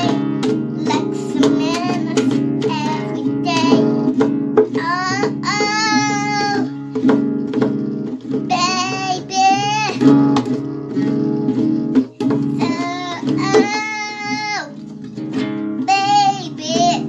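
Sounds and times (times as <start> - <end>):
child singing: 0.0 - 7.1, 8.2 - 11.2, 11.9 - 14.8, 15.8 - 17.0
strummed guitar chords: 0.0 - 17.0.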